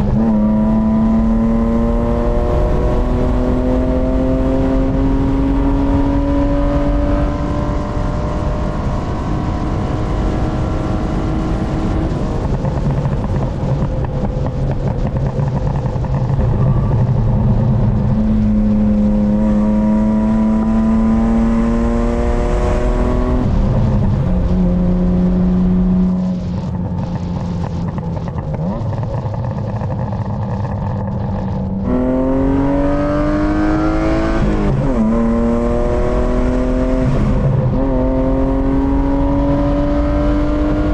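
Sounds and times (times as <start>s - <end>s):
car engine accelerating: 0.0s - 40.9s
exhaust pops and crackles: 11.6s - 19.6s, 23.3s - 32.0s.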